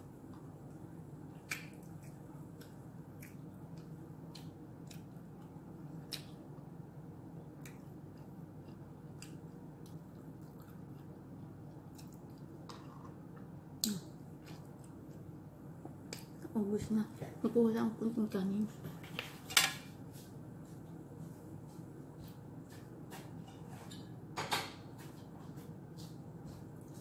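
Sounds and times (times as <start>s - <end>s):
wet mouth clicks while chewing: 1.4s - 5.2s.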